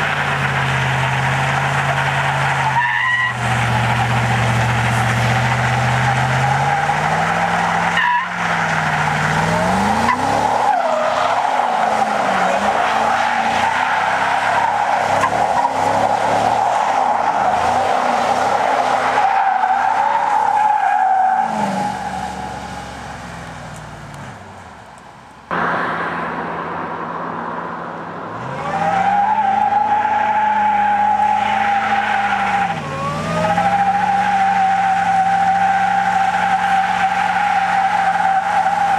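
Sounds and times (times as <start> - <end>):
engine revving high: 3.2 - 14.2, 25.5 - 38.9.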